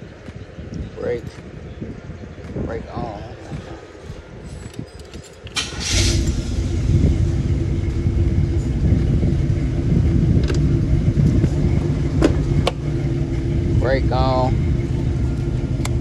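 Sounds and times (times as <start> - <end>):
car engine starting and idling: 5.5 - 16.0.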